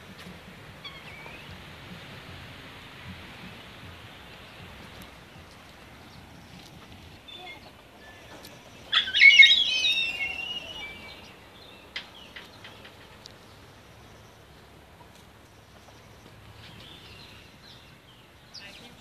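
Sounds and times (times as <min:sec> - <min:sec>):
bird wavering call: 0:07.3 - 0:11.3
faint bird chirps: 0:07.3 - 0:11.4.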